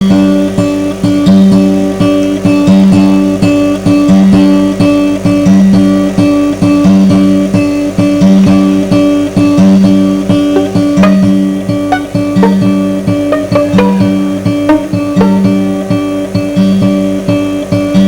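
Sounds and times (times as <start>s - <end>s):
guitar playing rhythmic figure: 10.3s - 16.8s.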